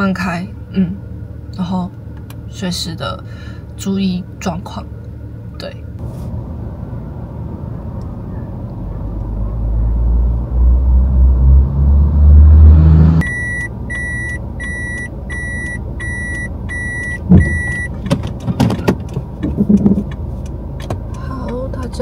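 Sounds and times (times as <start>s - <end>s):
car engine rumbling: 0.0s - 22.0s
car warning chime beeping: 13.2s - 18.0s.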